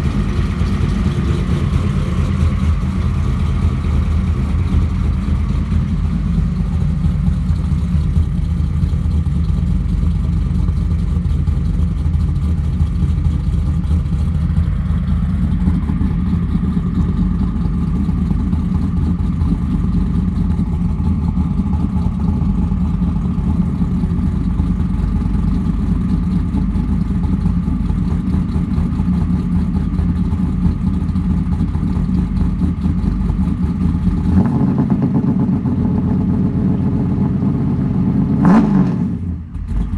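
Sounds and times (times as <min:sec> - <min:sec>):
car engine idling: 0:00.0 - 0:38.6, 0:39.2 - 0:39.9.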